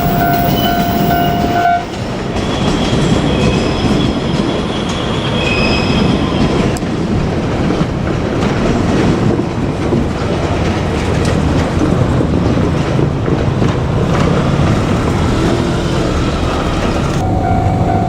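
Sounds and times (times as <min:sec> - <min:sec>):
steady tone: 0:00.0 - 0:02.0, 0:17.2 - 0:18.0
train wheels rumbling on rails: 0:00.0 - 0:18.0.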